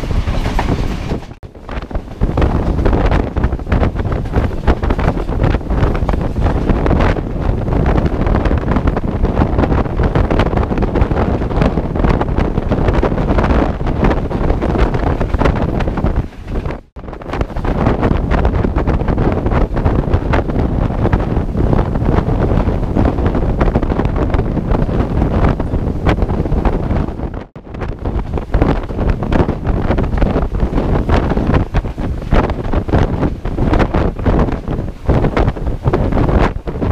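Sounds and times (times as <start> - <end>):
moving train rushing: 0.0 - 8.2
wind buffeting microphone: 0.0 - 36.9.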